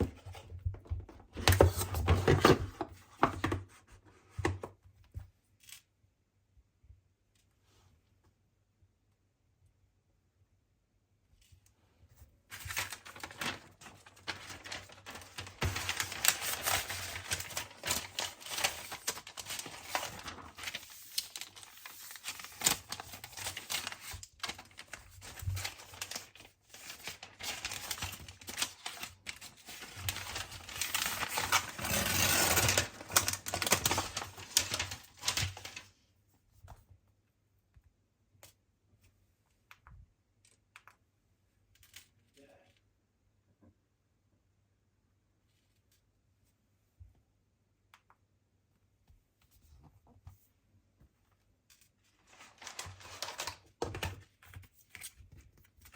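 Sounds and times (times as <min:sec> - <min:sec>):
card and plastic rustling: 0:00.0 - 0:05.8, 0:12.5 - 0:36.0, 0:51.7 - 0:55.9.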